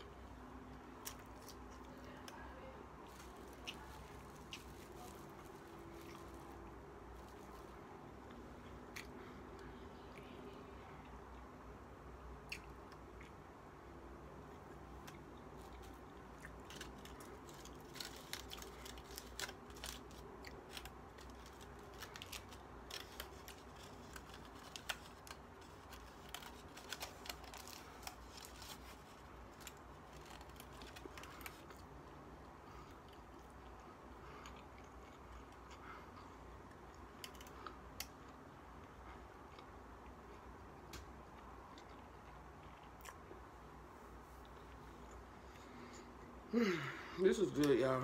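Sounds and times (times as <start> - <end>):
close-up chewing and biting: 3.0 - 9.2, 14.5 - 43.5.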